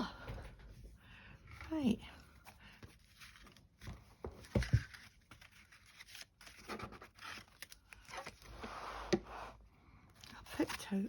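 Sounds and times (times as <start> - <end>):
paper rustling: 2.6 - 9.0.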